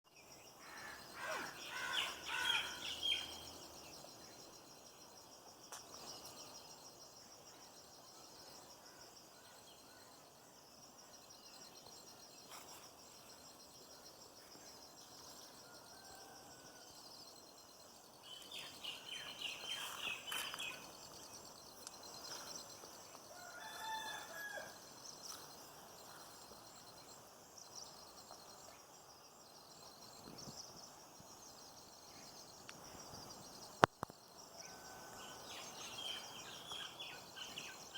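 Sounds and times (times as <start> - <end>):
birds calling: 1.0 - 3.4.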